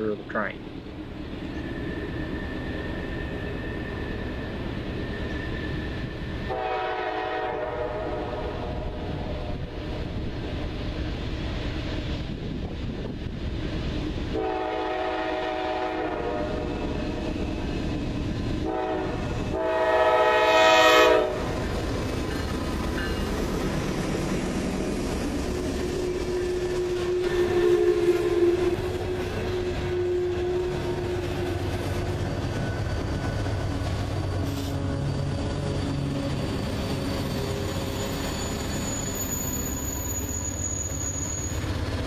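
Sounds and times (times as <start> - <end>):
diesel locomotive rumble: 0.0 - 42.0
train air horn blasts: 6.4 - 9.6, 14.3 - 16.8, 18.6 - 21.6, 26.5 - 31.6.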